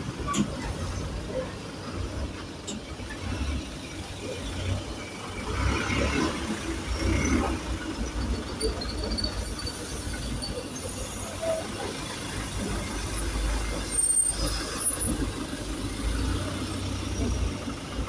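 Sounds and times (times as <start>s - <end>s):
bus engine rumble: 0.0s - 18.0s
faint high brake squeals: 8.0s - 12.2s, 12.9s - 15.5s.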